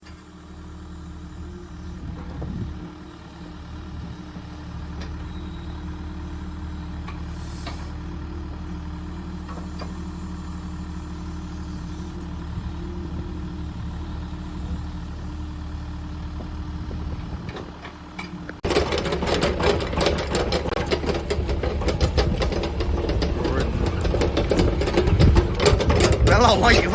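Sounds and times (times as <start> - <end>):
excavator diesel engine idling: 0.1 - 26.9
dense rattling clatter: 17.2 - 26.9.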